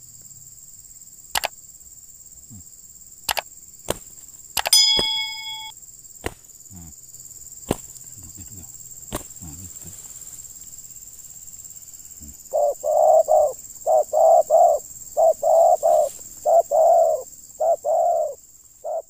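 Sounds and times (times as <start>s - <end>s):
dove cooing: 12.2s - 19.0s.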